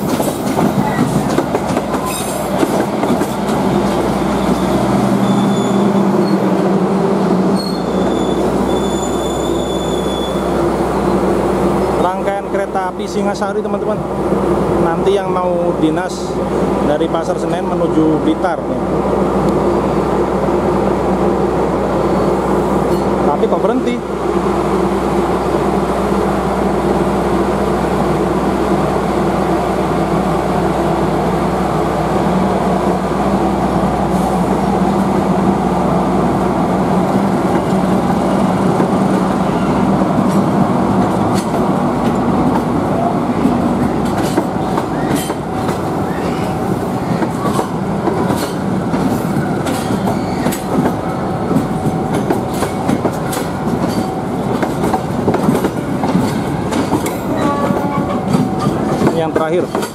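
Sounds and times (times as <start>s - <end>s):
train carriages rolling hum: 0.0s - 59.9s
wheels clicking over rail joints: 47.2s - 59.9s.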